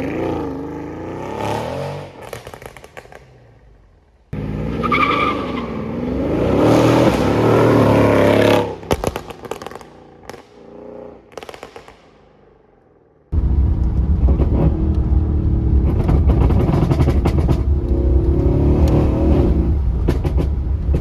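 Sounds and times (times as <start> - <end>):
exhaust crackles and pops: 2.1 - 4.0, 8.8 - 12.2, 13.3 - 21.0
car exhaust running hard: 13.4 - 21.0.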